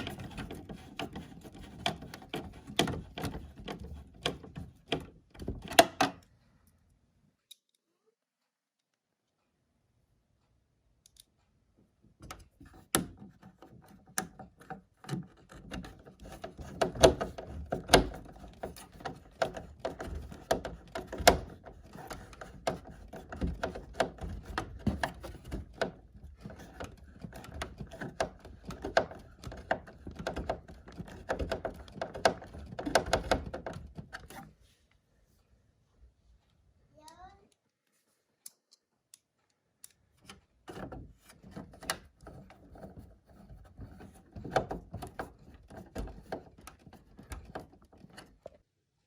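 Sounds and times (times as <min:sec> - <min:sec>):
parts clicking and knocking: 0:00.0 - 0:06.3, 0:12.1 - 0:34.6, 0:38.4 - 0:48.6.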